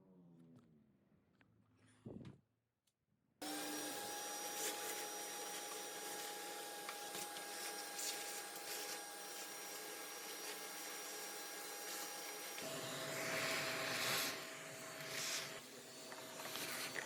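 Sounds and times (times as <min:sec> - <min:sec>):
vacuum cleaner running: 0:03.4 - 0:17.0.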